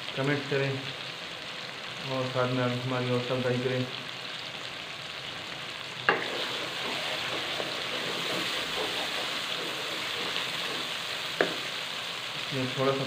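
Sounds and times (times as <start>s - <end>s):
tomatoes sizzling in a pan: 0.0s - 13.0s
wooden spatula knocking on pan: 6.1s - 11.7s.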